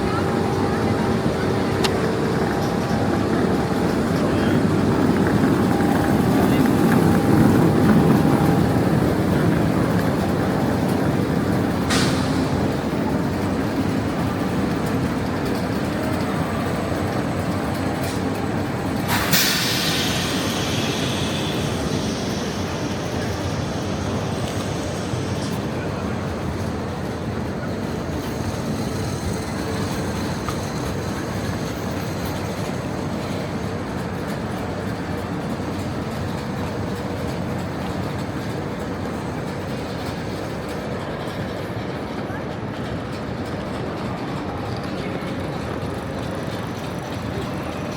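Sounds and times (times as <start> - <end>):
train rumbling: 0.0 - 47.9
air hiss: 19.0 - 25.8.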